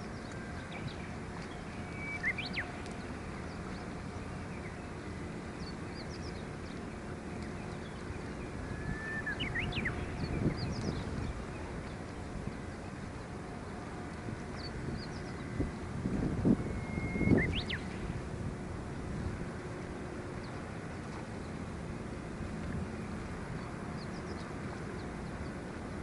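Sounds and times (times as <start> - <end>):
wind buffeting microphone: 0.0 - 26.0
bird gliding calls: 1.4 - 2.9, 8.2 - 11.7.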